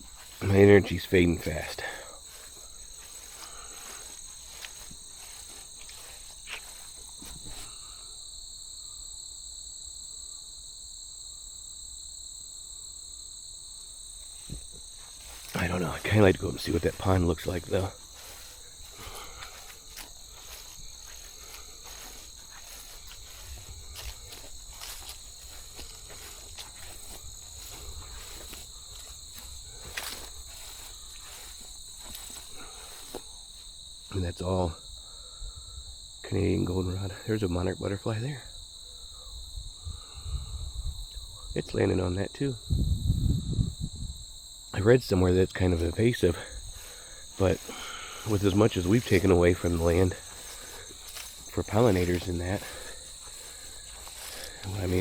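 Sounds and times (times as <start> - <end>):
footsteps: 0.0 - 8.0, 14.2 - 33.8, 45.4 - 55.0
insects shrilling: 0.0 - 36.6, 43.4 - 55.0
crickets trilling: 0.0 - 55.0.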